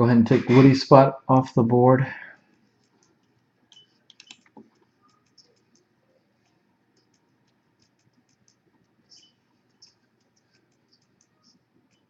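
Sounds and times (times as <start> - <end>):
computer keyboard and mouse clicks: 2.8 - 12.0.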